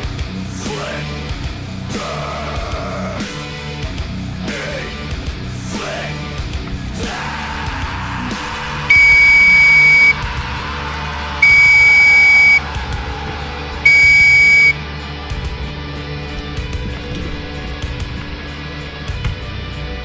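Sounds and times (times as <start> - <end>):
background music: 0.0 - 20.0
long loud electronic beeps: 8.9 - 10.2, 11.4 - 12.6, 13.9 - 14.8.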